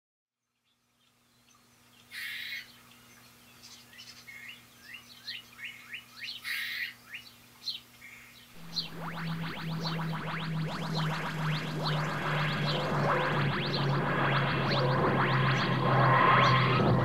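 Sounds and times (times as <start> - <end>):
birds chirping: 1.4 - 17.0
synthesised music: 8.6 - 17.0.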